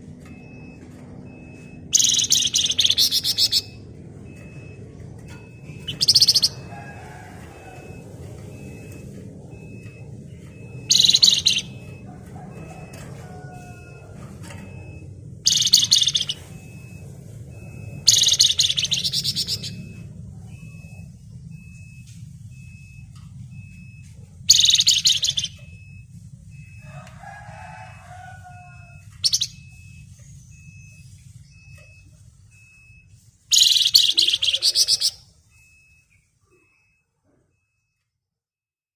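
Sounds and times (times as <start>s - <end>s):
steady low hum: 0.0s - 33.5s
faint high peeps: 0.2s - 26.0s, 26.6s - 38.0s
songbird chattering trill: 2.0s - 3.8s, 5.8s - 6.7s, 10.9s - 11.9s, 15.5s - 16.5s, 18.1s - 19.8s, 24.5s - 25.6s, 33.5s - 35.2s
low drawn-out bird call: 5.4s - 23.0s, 32.8s - 36.9s.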